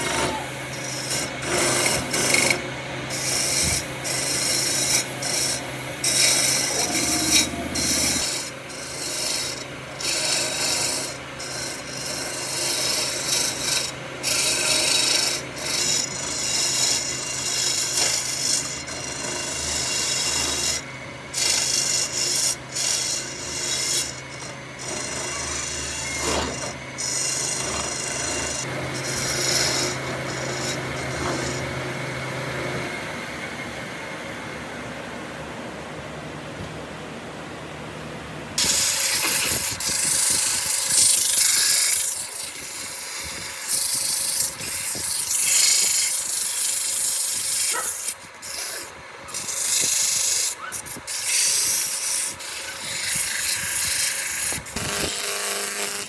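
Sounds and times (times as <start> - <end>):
wood sanding by hand: 0.0 - 20.8, 38.6 - 56.0.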